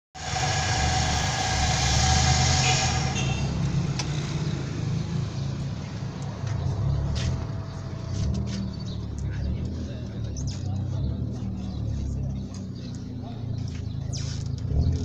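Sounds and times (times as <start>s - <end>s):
high whine: 0.2s - 4.1s.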